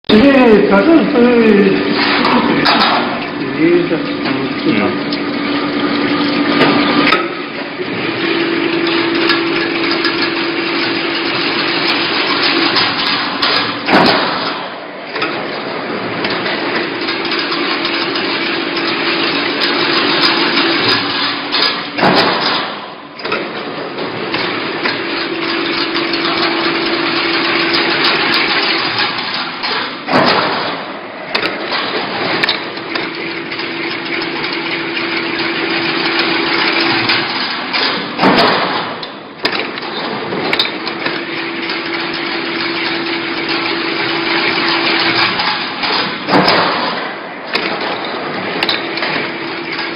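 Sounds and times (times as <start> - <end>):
machine motor hum: 0.1 - 49.9
sharp metallic clatter: 16.2 - 23.5.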